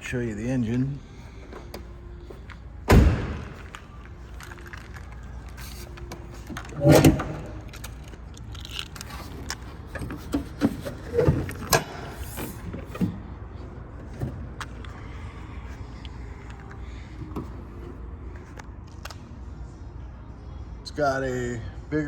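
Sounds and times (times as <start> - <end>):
truck hood clunk: 2.9 - 3.7, 6.7 - 7.7.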